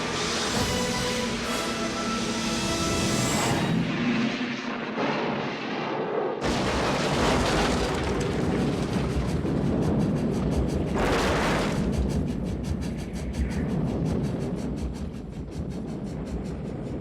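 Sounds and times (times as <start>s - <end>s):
loud explosion blast: 6.4s - 9.9s
dense rumble: 6.4s - 17.0s.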